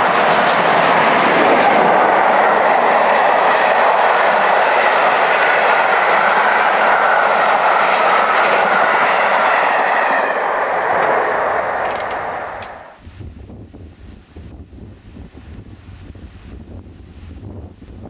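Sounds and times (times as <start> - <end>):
train wheels on rails: 0.0 - 13.0.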